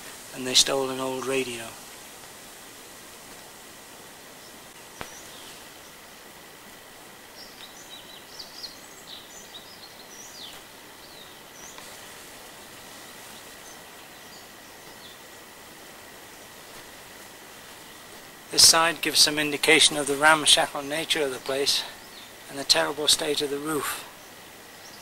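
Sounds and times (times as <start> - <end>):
steady hiss: 0.0 - 25.0
bird chirping: 4.2 - 6.2, 7.2 - 16.9, 18.6 - 25.0.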